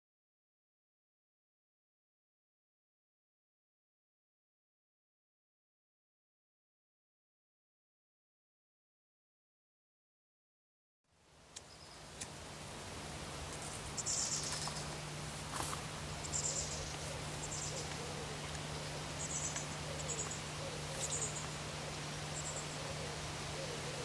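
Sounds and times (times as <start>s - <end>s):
steady hiss: 11.1s - 24.0s
low hum: 11.2s - 24.0s.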